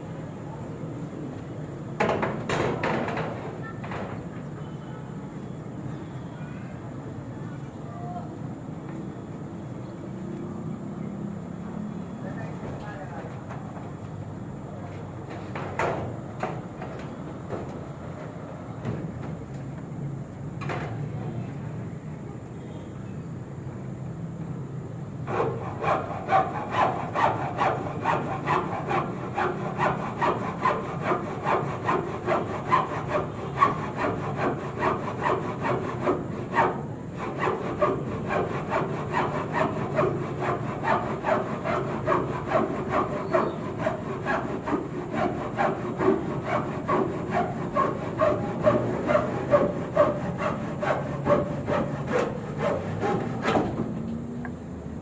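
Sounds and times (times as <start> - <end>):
handsaw cutting wood: 25.3 - 53.8.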